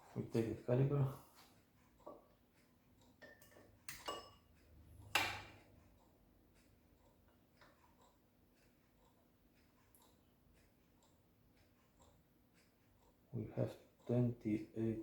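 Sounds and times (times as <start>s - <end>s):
metal clicks and knocks: 5.1s - 5.6s.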